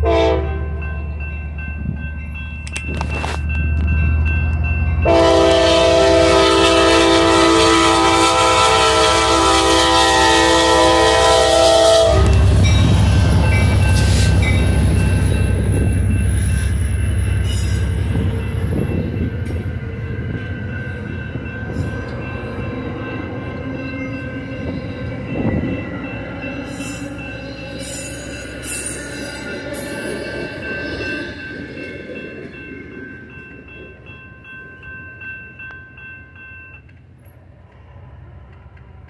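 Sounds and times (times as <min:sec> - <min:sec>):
train horn chord: 0:00.0 - 0:00.9, 0:05.0 - 0:14.6
locomotive rumbling past: 0:00.0 - 0:39.0.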